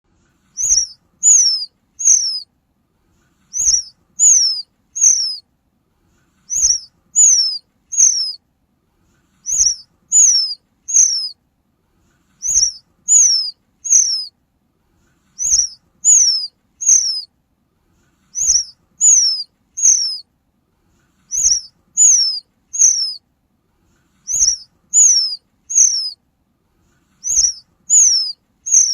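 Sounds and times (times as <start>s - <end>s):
high-pitched bird whistles: 0.5s - 2.5s, 3.5s - 5.4s, 6.5s - 8.4s, 9.4s - 11.4s, 12.4s - 14.3s, 15.4s - 17.3s, 18.3s - 20.2s, 21.3s - 23.2s, 24.2s - 26.2s, 27.2s - 28.9s.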